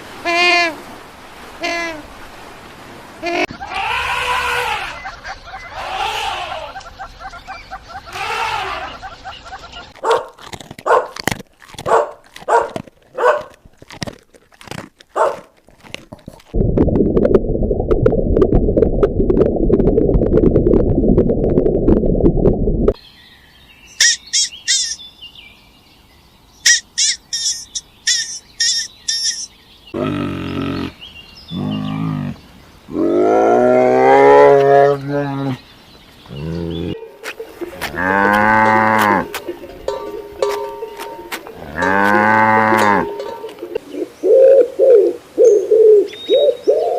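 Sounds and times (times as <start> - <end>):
loud steady rasping call: 3.2 - 11.1, 24.0 - 25.0, 26.6 - 32.3
long rising and falling calls: 23.9 - 25.0
quick high chirps: 24.0 - 25.0, 26.6 - 29.5.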